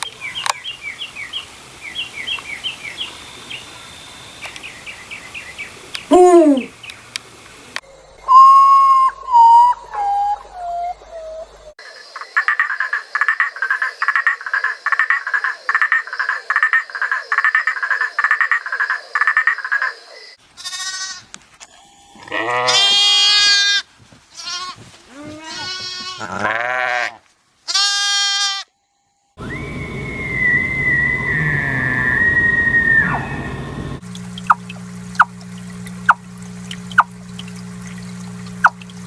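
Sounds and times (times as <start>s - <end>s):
goat bleating: 20.6s - 21.3s, 22.2s - 28.7s
high steady whistling call: 29.4s - 34.6s.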